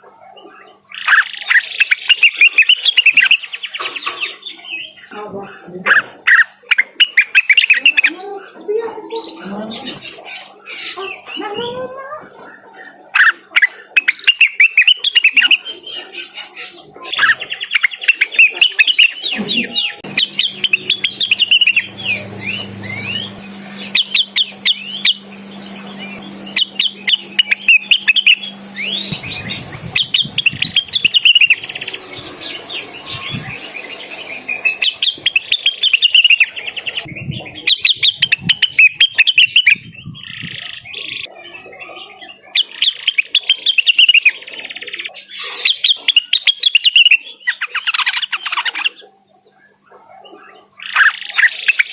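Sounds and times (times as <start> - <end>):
bird singing chattering chirps: 0.9 - 5.1, 13.7 - 41.3.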